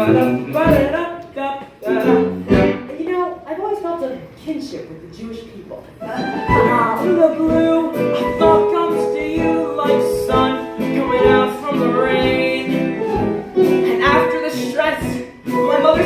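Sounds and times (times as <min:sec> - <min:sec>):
guitar accompaniment: 0:00.0 - 0:01.0, 0:01.7 - 0:02.9, 0:06.0 - 0:16.0
person singing: 0:00.0 - 0:02.8, 0:06.3 - 0:16.0.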